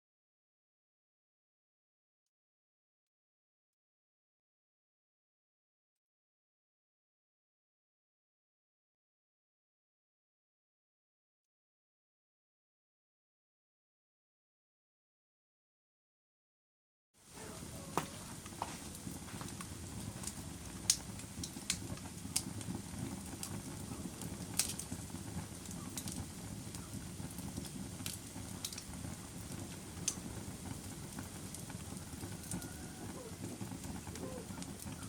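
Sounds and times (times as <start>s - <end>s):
burning logs crackling and popping: 17.2s - 35.0s
low rumble of flames: 17.2s - 35.0s.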